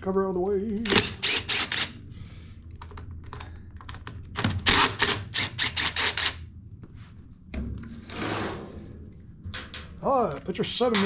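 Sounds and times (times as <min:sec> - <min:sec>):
socket ratchet clicking: 0:00.9 - 0:02.0.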